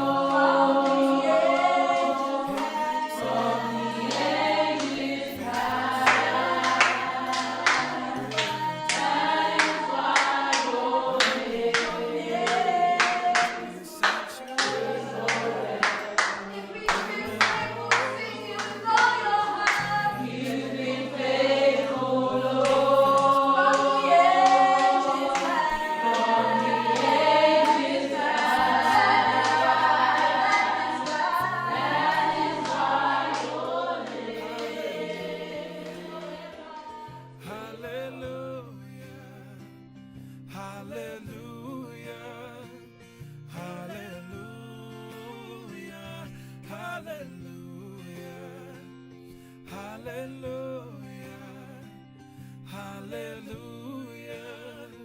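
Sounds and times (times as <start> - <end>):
choir singing a worship song: 0.0 - 38.4.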